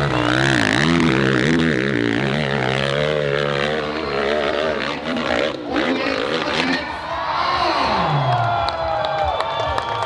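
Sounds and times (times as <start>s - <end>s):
dirt bike engine revving: 0.0s - 7.0s.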